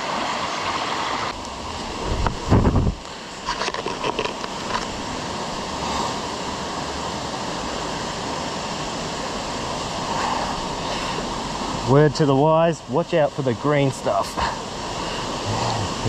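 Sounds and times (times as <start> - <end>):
creek water running over rocks: 0.0 - 16.0.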